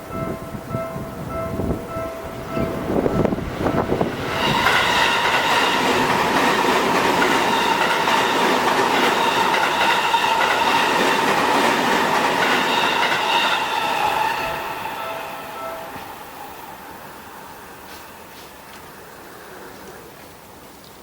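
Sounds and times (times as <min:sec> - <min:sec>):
train wheels on rail: 0:02.3 - 0:21.0
high ringing whine: 0:12.4 - 0:18.4.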